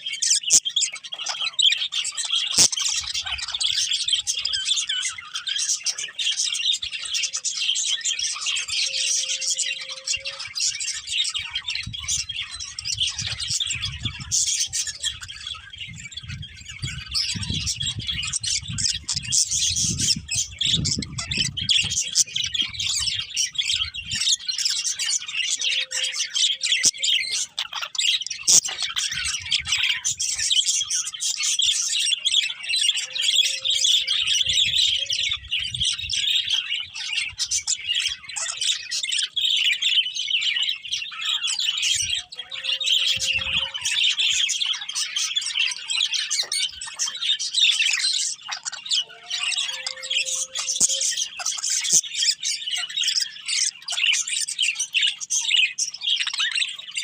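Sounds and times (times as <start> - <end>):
budgerigars chirping: 0.0 - 57.0.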